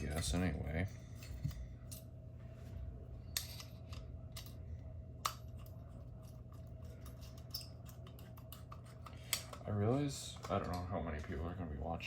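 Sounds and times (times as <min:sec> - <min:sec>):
faint steady hum: 0:00.0 - 0:12.0
light fixture parts clicking: 0:03.3 - 0:09.7.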